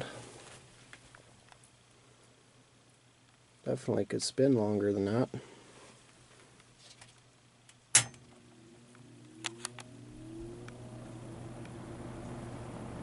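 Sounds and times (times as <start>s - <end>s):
fan motor humming and whining: 8.0s - 13.0s
fan switch click: 9.2s - 10.8s.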